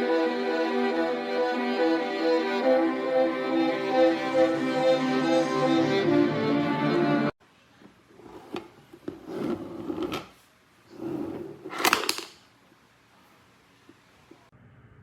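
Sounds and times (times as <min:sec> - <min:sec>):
scraping or rubbing: 0:08.2 - 0:11.9.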